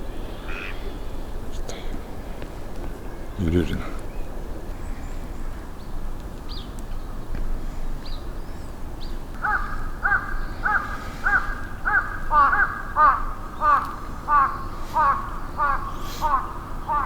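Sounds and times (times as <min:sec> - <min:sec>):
steady outdoor noise: 0:00.0 - 0:17.0
crow cawing: 0:00.5 - 0:00.8, 0:09.4 - 0:17.0.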